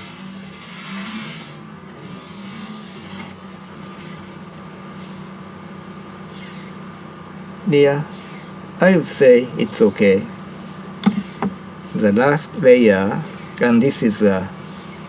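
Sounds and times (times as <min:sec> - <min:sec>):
soft brushing sounds: 0:00.0 - 0:07.1, 0:10.3 - 0:11.0
steady low hum: 0:00.0 - 0:15.0.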